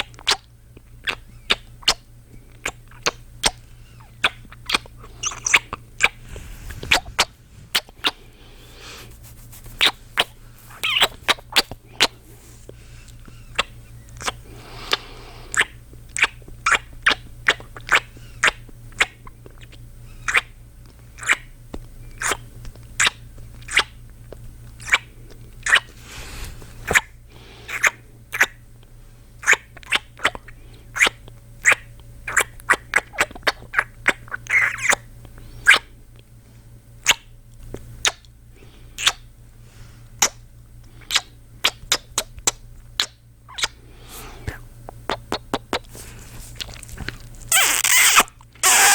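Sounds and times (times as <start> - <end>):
man kissing lip smacks: 41.1 - 43.7.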